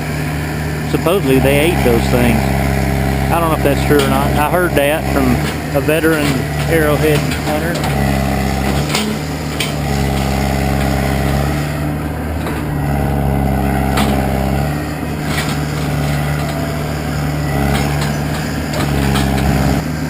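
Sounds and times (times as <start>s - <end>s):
heavy machinery engine running: 0.0s - 20.0s.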